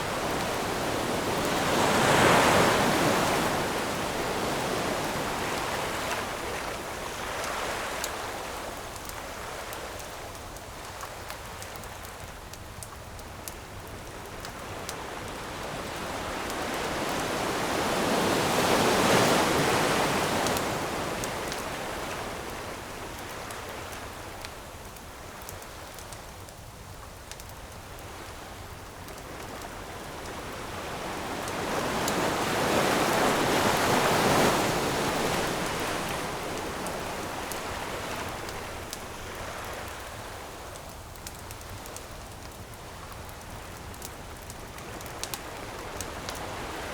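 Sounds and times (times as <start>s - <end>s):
ocean waves breaking: 0.0s - 8.5s, 14.7s - 23.5s, 29.3s - 40.6s
campfire wood crackling: 0.0s - 46.9s.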